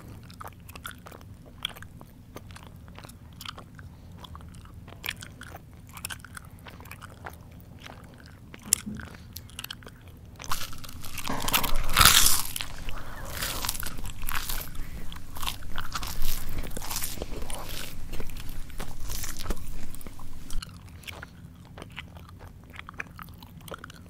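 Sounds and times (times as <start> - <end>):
crunchy food chewing: 0.0 - 24.0
mouth clicks: 8.7 - 20.6.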